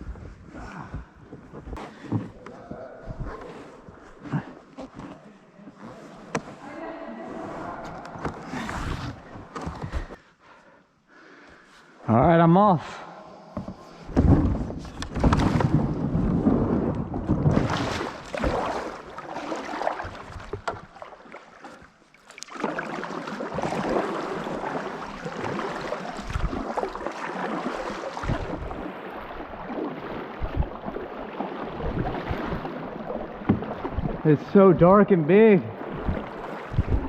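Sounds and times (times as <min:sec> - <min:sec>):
knocks and thumps: 0:13.6 - 0:18.8
paddle splashing in water: 0:13.6 - 0:37.0.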